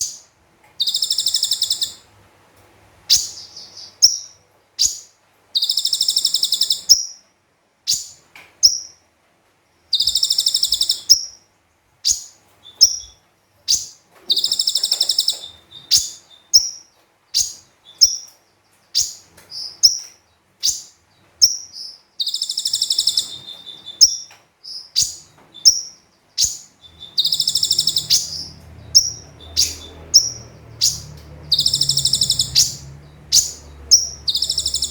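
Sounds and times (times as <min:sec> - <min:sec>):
bird high buzzing trills: 0:00.8 - 0:02.0, 0:10.0 - 0:11.4, 0:12.1 - 0:16.8, 0:20.7 - 0:34.9
bird short sharp chirps: 0:19.0 - 0:34.9.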